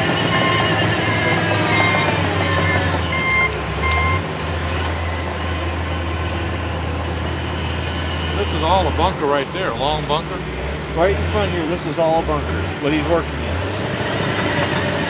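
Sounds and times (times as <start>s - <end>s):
reversing alarm beeping: 0.0s - 4.3s
heavy machine engine running: 0.0s - 15.0s.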